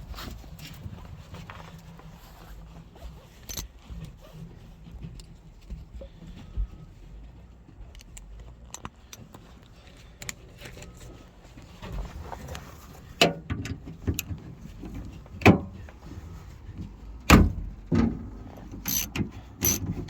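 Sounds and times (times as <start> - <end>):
hand tools clicking and rattling: 3.4 - 3.7, 18.7 - 20.0.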